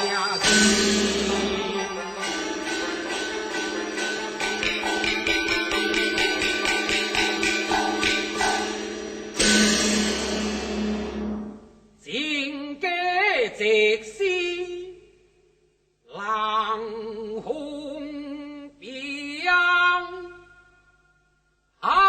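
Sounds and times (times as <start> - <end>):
person singing with vibrato: 0.0 - 9.1
percussion crash: 0.0 - 12.0.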